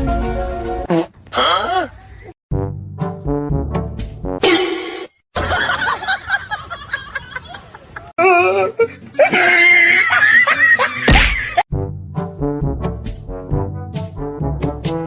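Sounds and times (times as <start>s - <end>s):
music: 0.0s - 0.9s, 2.5s - 4.4s, 11.7s - 15.0s
people laughing and squealing: 5.4s - 11.6s.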